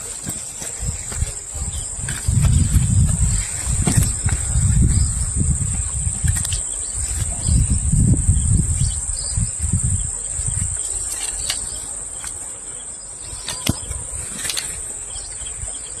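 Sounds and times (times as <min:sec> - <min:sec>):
insects droning: 0:00.0 - 0:16.0
low rumbling: 0:00.8 - 0:10.8.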